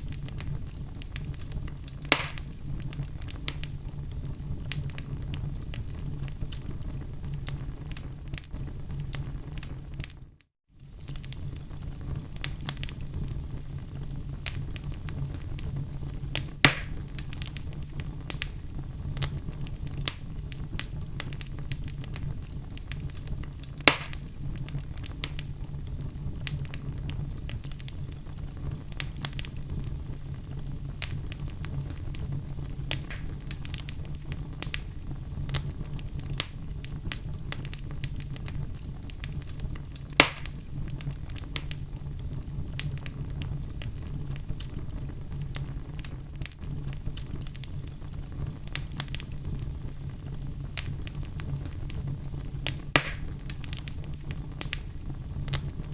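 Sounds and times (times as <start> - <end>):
sharp popping of burning wood: 0.0 - 10.2, 10.8 - 55.9
fire flames rumbling: 0.0 - 55.9
wood crackling: 0.0 - 55.9.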